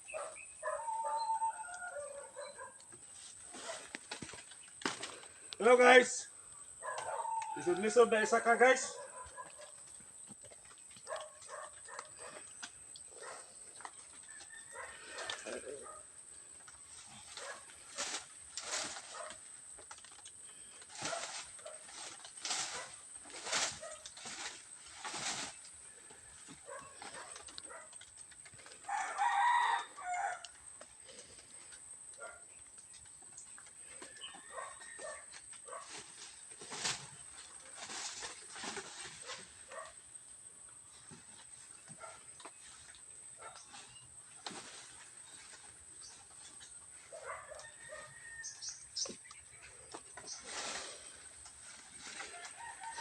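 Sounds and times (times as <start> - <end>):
rustling: 0.1 - 29.5, 30.7 - 53.0
rooster crowing: 0.6 - 2.5, 6.8 - 8.0, 14.2 - 15.7, 28.8 - 30.5, 47.3 - 48.8, 52.2 - 53.0.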